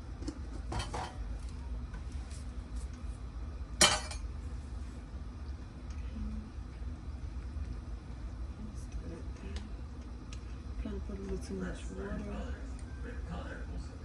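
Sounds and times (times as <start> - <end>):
steady low hum: 0.0 - 14.0
cookware clinking: 3.8 - 4.3.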